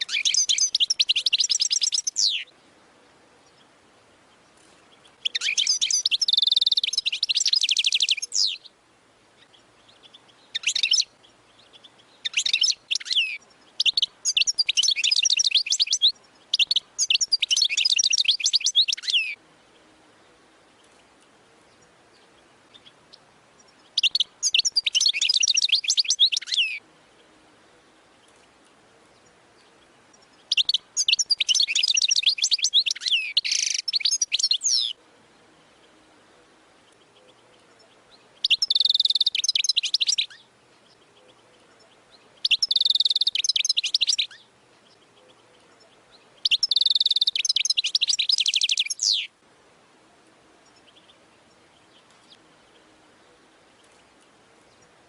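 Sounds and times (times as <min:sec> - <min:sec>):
goldfinch twittering song: 0:00.0 - 0:02.6, 0:04.3 - 0:08.7, 0:09.4 - 0:19.8, 0:20.6 - 0:26.8, 0:28.1 - 0:35.0, 0:36.9 - 0:49.3.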